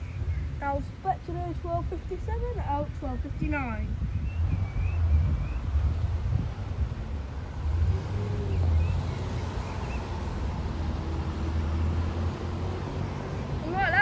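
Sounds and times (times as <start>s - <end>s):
car engine hum: 4.3s - 14.0s.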